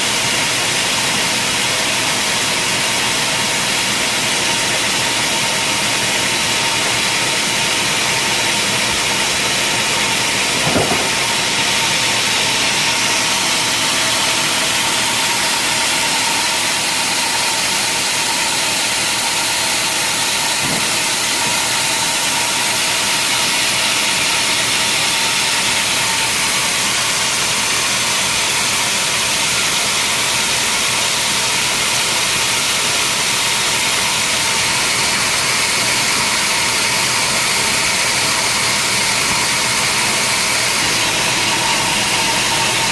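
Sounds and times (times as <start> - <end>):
sawmill machinery hissing and whining: 0.0 - 42.9
short knock: 10.6 - 11.5, 20.5 - 21.2.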